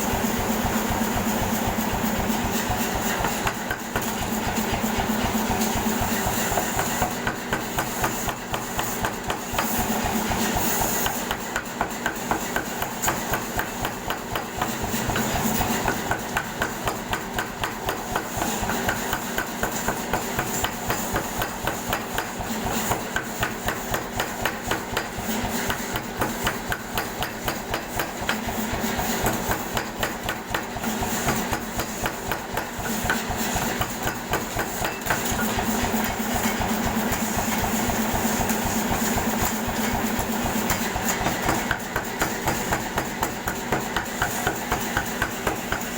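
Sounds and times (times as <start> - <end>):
air hammer pounding: 0.0 - 45.9.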